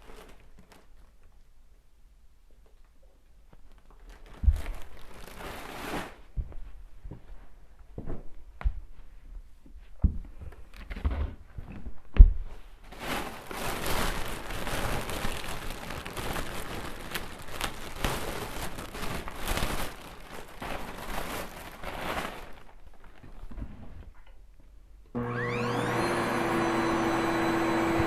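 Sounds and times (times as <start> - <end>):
vacuum cleaner running: 25.2 - 28.0.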